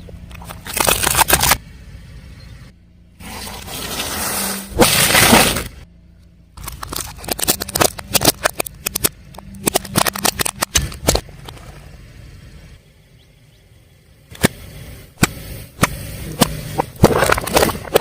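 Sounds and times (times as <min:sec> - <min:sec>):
tyre crunching brittle objects: 0:00.4 - 0:01.6, 0:03.3 - 0:05.7, 0:06.6 - 0:11.7, 0:16.4 - 0:18.0
sharp cracks and snaps: 0:06.6 - 0:11.6.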